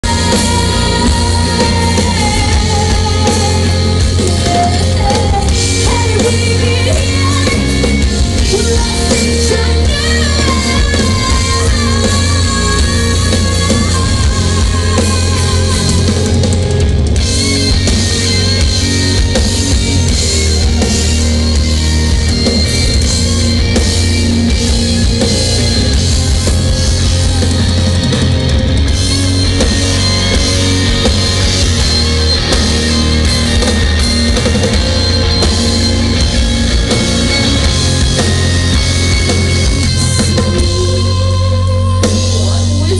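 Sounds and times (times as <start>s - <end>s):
person singing: 0.0s - 16.6s, 39.9s - 42.9s
live rock band playing: 0.0s - 42.9s.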